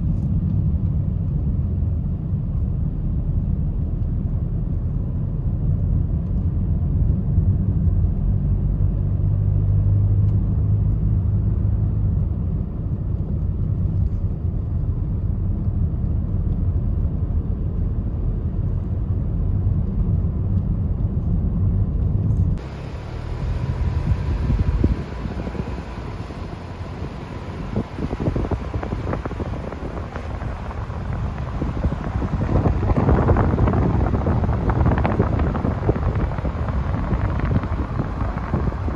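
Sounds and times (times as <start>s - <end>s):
vehicle driving rumble: 0.0s - 38.9s
faint hum: 22.6s - 38.9s.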